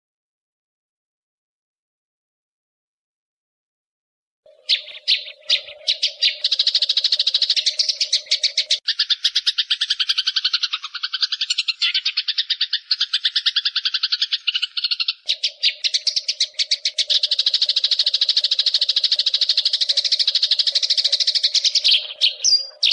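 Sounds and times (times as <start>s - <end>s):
sparrows chirping sharply: 4.5s - 22.9s.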